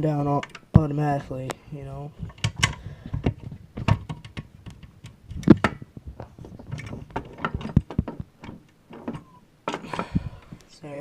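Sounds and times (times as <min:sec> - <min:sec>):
toy parts clicking and knocking: 0:02.2 - 0:10.2.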